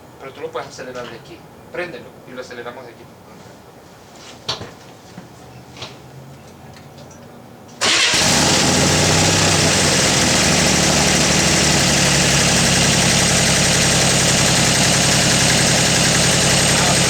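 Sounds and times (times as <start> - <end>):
car engine starting and idling: 7.8 - 17.0.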